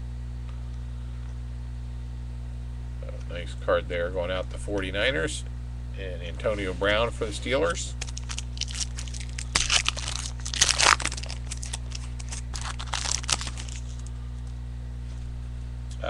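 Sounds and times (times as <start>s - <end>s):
steady low hum: 0.0s - 16.0s
plastic packaging crinkling: 7.9s - 14.5s.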